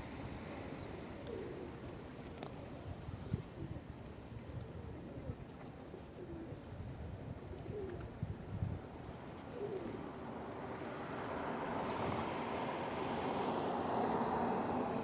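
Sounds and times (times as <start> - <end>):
pigeons cooing softly: 0.2 - 6.8, 7.4 - 8.2, 9.0 - 11.0.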